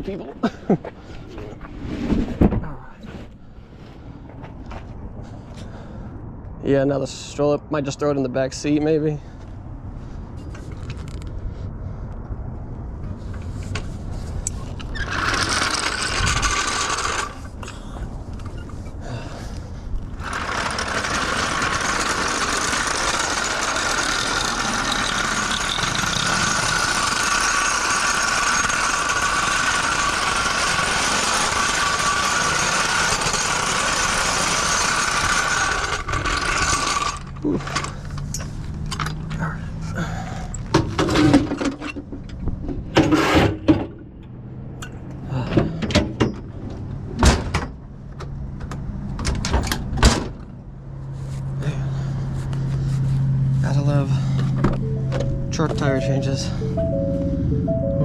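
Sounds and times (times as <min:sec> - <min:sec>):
machine running: 0:15.0 - 0:17.5, 0:20.2 - 0:37.9.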